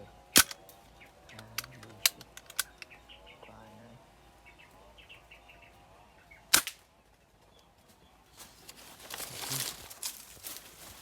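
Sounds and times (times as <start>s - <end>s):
birds chirping faintly: 0.0s - 11.0s
air rifle shot: 6.5s - 6.8s.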